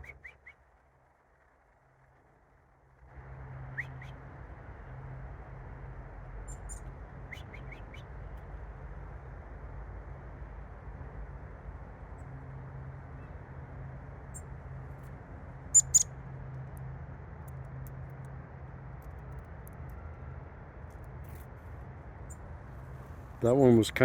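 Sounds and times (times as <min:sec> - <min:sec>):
songbird high chirps: 0:03.7 - 0:04.2, 0:06.5 - 0:08.1, 0:15.7 - 0:16.1.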